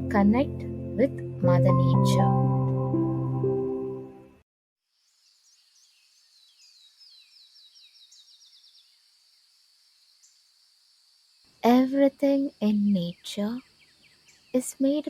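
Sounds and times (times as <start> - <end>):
soft meditation music: 0.0 - 4.2
high insect drone: 5.0 - 12.1
bird chirping: 5.0 - 15.0.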